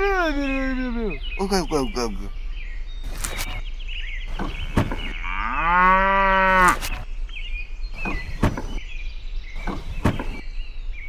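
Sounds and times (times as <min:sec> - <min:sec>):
faint bird chirps: 0:00.0 - 0:05.7, 0:06.3 - 0:11.0
sharp knocks: 0:04.3 - 0:05.2, 0:08.0 - 0:08.8, 0:09.6 - 0:10.4
cow mooing: 0:05.2 - 0:06.9.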